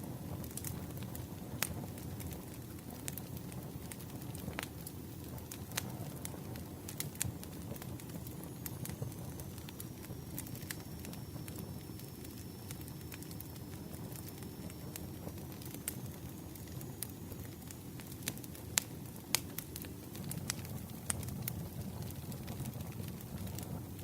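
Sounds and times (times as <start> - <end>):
wood crackling and popping: 0.0 - 24.0
faint high whistle: 8.6 - 17.6.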